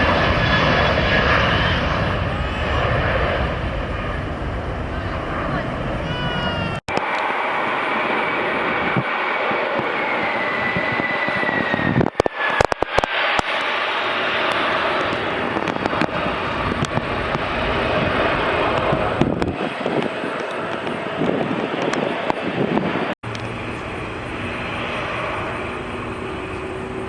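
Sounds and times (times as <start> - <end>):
jet engine whine: 0.0 - 27.0
jet engines roaring: 0.0 - 27.0.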